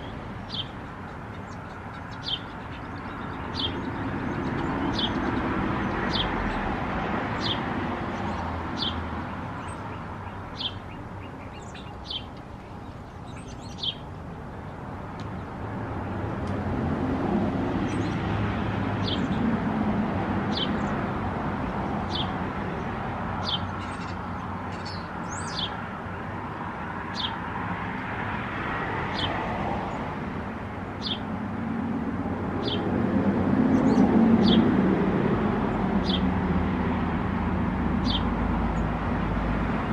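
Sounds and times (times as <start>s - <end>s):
passing traffic: 0.0s - 39.9s
small bird chirping: 9.6s - 14.0s.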